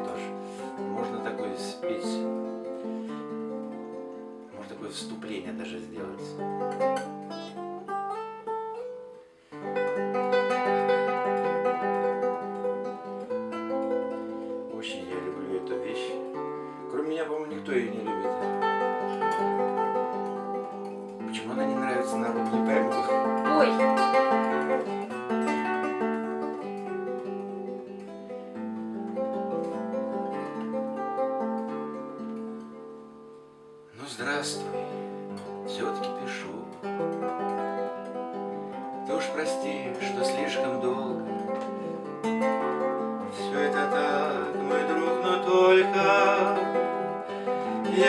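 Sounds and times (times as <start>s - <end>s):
acoustic guitar playing: 0.0s - 48.0s.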